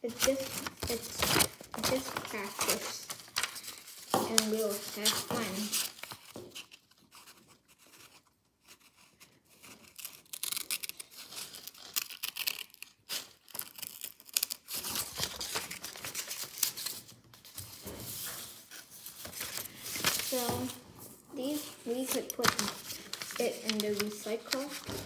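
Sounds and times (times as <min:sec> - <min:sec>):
scissors snipping paper: 0:00.0 - 0:03.7, 0:04.3 - 0:07.3, 0:09.5 - 0:16.9, 0:21.9 - 0:25.0
paper rustling: 0:00.0 - 0:25.0.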